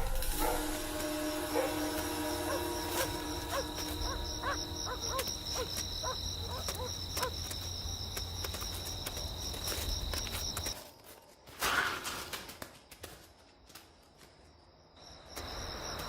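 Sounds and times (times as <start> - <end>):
high-pitched insect trill: 0.0 - 10.8
short chirping animal calls: 2.4 - 7.3.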